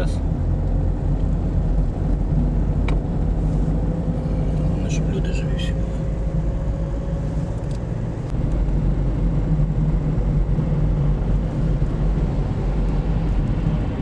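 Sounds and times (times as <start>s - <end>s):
car engine rumble: 0.0s - 14.0s
tyres on road: 0.0s - 14.0s.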